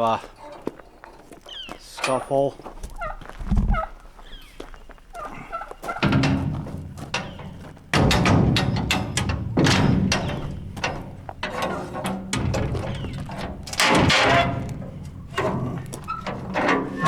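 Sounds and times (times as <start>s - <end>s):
metal gate clanking and rattling: 1.9s - 2.5s, 5.9s - 17.0s
grinding hinge: 5.9s - 17.0s
loud knocks on metal gate: 6.0s - 16.0s.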